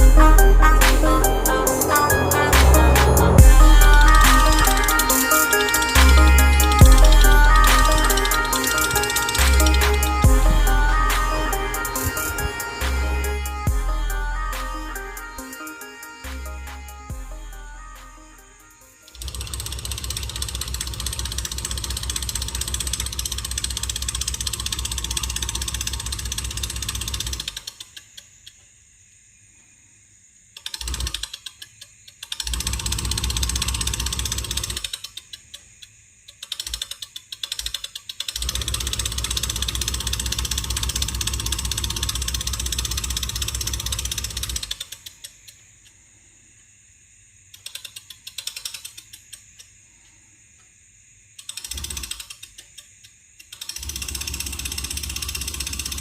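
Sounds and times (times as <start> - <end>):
small motor clicking whir: 19.0 - 28.6, 30.5 - 45.6, 47.5 - 49.7, 51.4 - 56.0.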